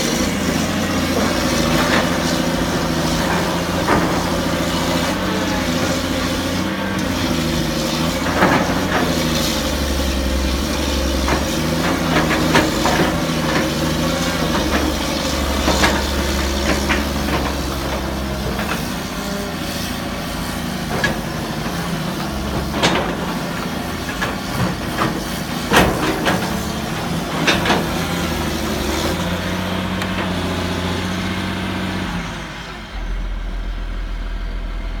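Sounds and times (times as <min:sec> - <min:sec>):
excavator diesel engine under load: 0:00.0 - 0:35.0
knocks and clanks: 0:22.5 - 0:28.2.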